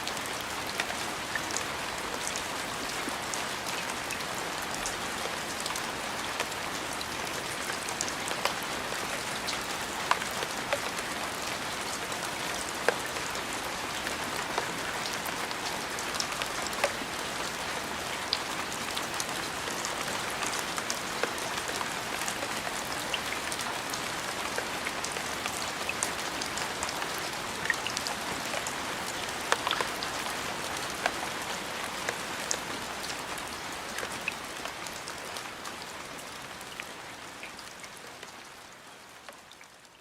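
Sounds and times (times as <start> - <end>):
steady rain falling: 0.0 - 40.0
raindrops ticking: 24.4 - 30.2.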